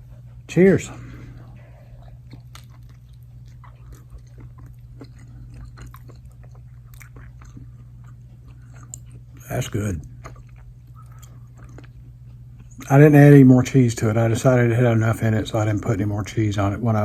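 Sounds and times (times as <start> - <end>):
chewing crunches: 1.1 - 13.5.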